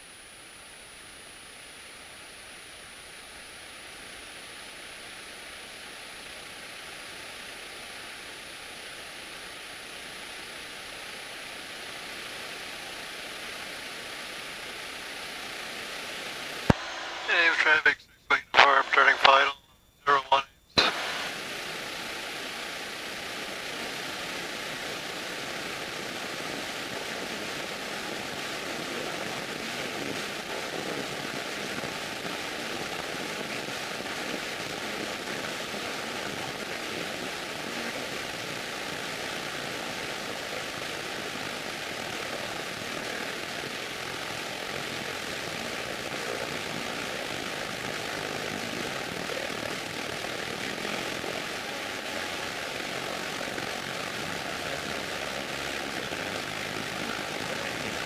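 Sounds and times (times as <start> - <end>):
propeller airplane engine: 0.0 - 19.5, 20.2 - 58.0.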